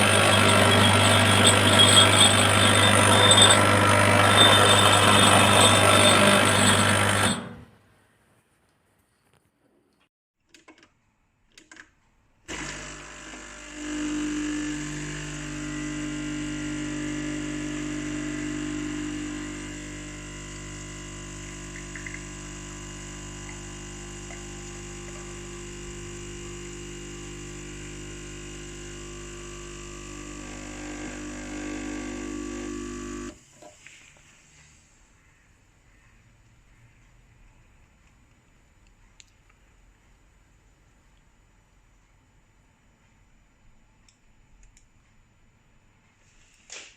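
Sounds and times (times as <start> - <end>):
espresso machine pump buzzing: 0.0 - 7.6, 12.5 - 33.4.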